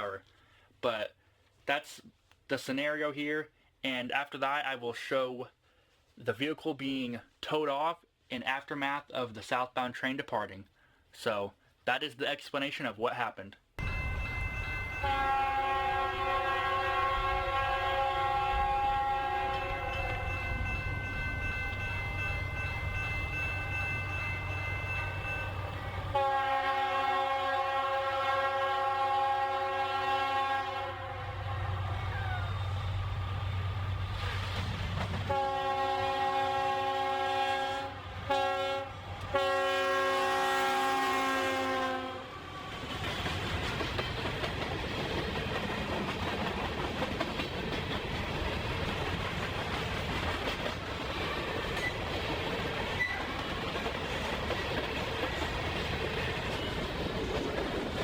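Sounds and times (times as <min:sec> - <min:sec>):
low rumble of train: 0:13.8 - 0:58.0
train horn chord: 0:14.8 - 0:20.8, 0:25.2 - 0:32.0, 0:35.3 - 0:42.4.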